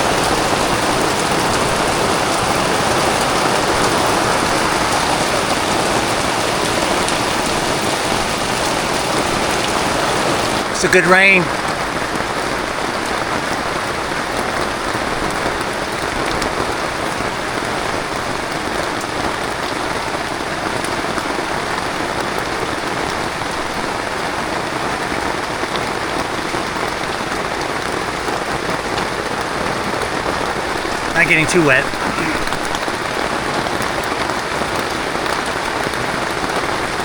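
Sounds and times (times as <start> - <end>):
heavy rain hissing: 24.7 - 37.0.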